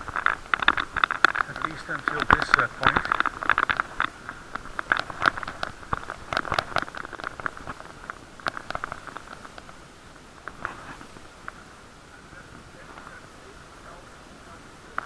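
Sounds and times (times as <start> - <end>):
clicking and rattling: 0.0 - 11.6
muffled hiss: 0.0 - 15.0.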